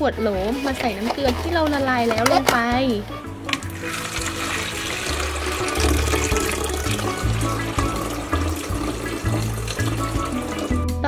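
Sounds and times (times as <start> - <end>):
background music: 0.0 - 11.0
water pouring into plastic jar: 3.4 - 10.9.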